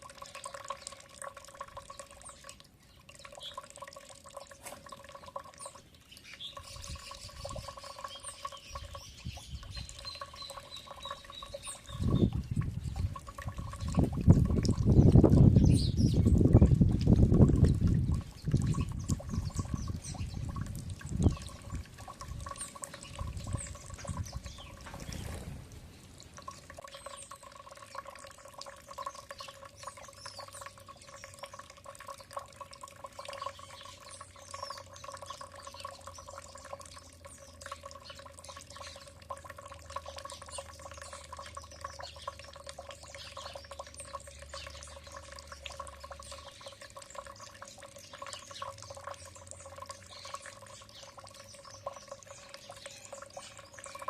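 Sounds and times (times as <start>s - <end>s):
water trickling and dripping: 0.0s - 54.0s
small birds chirping: 1.7s - 54.0s.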